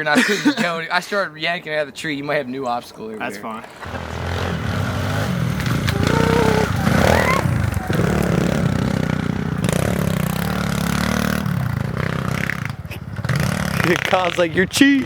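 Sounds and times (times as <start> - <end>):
pit bike engine running: 3.8 - 15.0.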